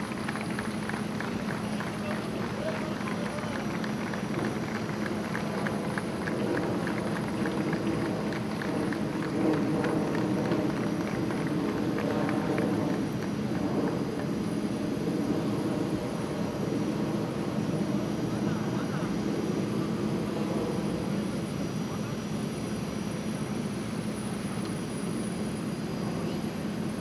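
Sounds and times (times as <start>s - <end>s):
faint rapid clicks: 0.0s - 13.4s
jet engines idling: 0.0s - 27.0s.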